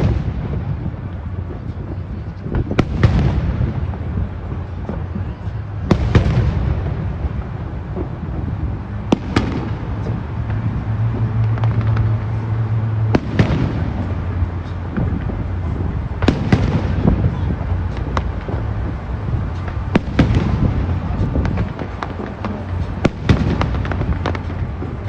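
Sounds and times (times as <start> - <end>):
firework pops and crackles: 0.0 - 25.0
low rumble of booms: 0.0 - 25.0
firework shells bursting: 5.9 - 25.0.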